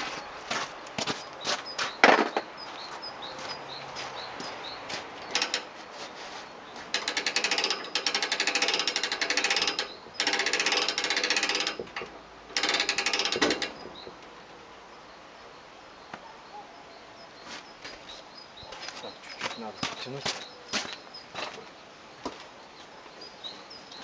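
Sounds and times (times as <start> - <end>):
ratchet clicking rapidly: 7.0 - 13.8.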